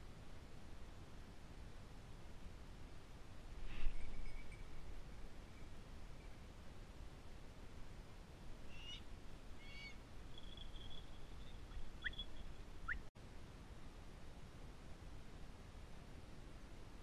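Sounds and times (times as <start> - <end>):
faint bird calls and whistles: 3.6 - 6.5, 8.7 - 13.1.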